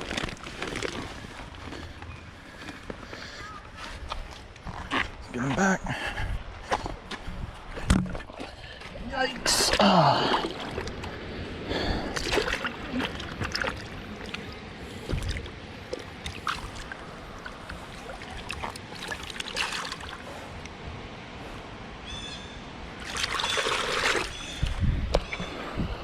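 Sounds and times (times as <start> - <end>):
water trickling and splashing: 6.6 - 20.8, 23.0 - 25.5
loud splash: 23.0 - 24.4.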